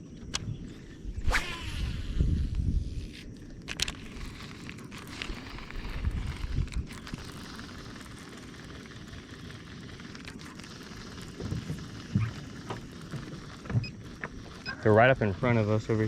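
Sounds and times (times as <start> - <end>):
wind buffeting microphone: 0.2 - 8.1.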